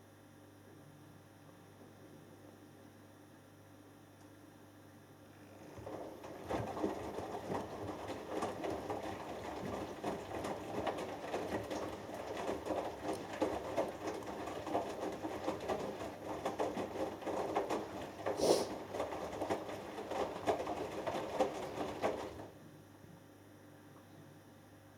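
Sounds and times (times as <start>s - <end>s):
washing machine drum tumbling: 5.4s - 22.6s
water and laundry sloshing: 5.4s - 22.8s.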